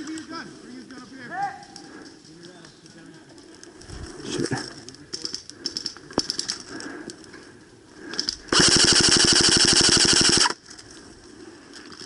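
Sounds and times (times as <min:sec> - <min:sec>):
airsoft gun full-auto burst: 0:08.5 - 0:10.6.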